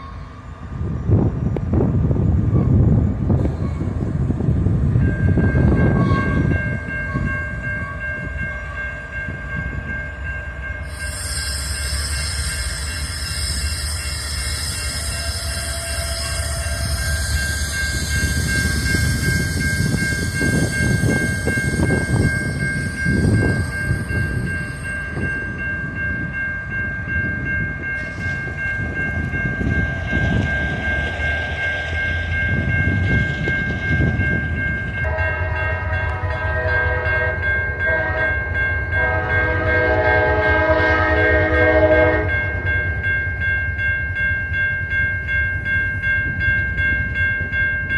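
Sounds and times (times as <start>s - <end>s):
diesel locomotive rumble: 0.0s - 47.5s
high-pitched squeal: 10.9s - 24.8s, 28.0s - 35.0s
multi-chime air horn: 35.0s - 42.6s.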